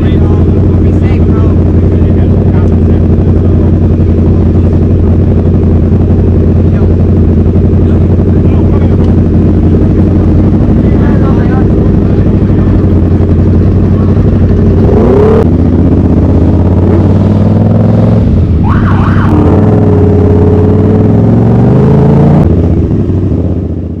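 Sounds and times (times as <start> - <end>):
vehicle engine revving high: 0.0 - 24.0
whooping tone: 16.7 - 20.7.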